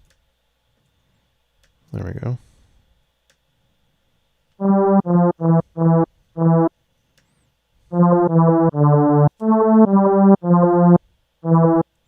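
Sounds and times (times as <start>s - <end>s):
synthesizer lead notes: 4.6s - 6.7s, 7.9s - 11.9s.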